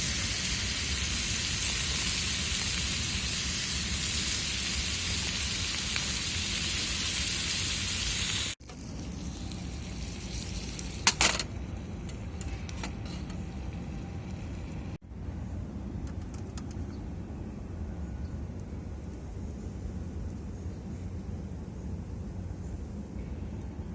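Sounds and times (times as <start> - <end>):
food sizzling in frying pan: 0.0 - 11.4.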